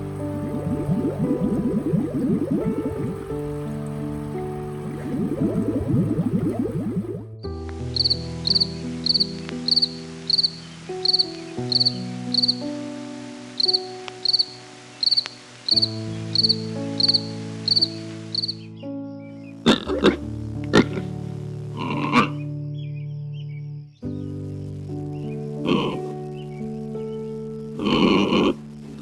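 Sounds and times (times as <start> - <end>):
background music with chords: 0.0 - 29.0
cricket chirping: 7.9 - 12.8, 13.5 - 18.7.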